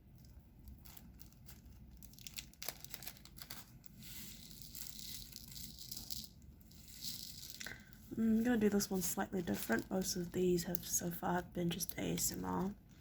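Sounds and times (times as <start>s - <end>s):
plastic crinkling and tearing: 0.0s - 8.0s.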